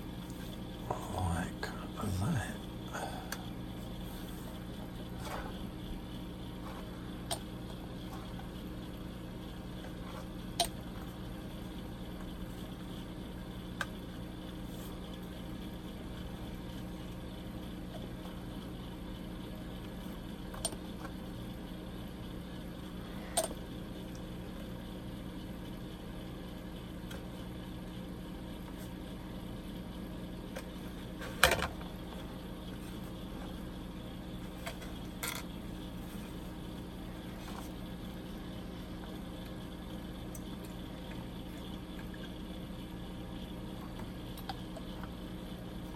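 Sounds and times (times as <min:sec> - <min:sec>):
low background hum: 0:00.0 - 0:45.9.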